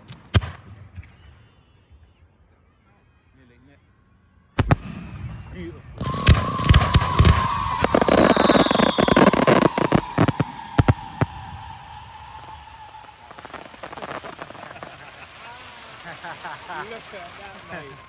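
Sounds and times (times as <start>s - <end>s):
short high firework whistle: 4.6s - 15.2s
firework bangs and crackling: 4.6s - 18.0s
long falling firework whistle: 6.0s - 18.0s.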